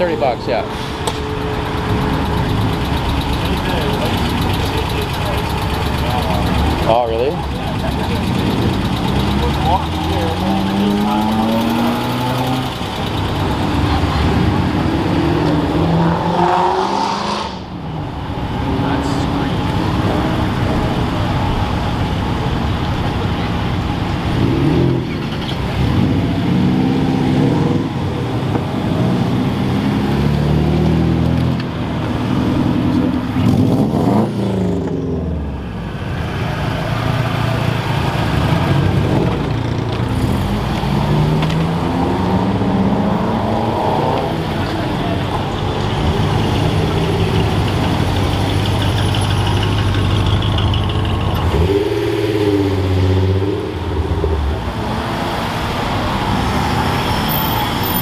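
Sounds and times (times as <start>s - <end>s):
car engine revving: 0.0s - 58.0s
car engines running: 0.0s - 58.0s
cars pulling away: 0.0s - 58.0s.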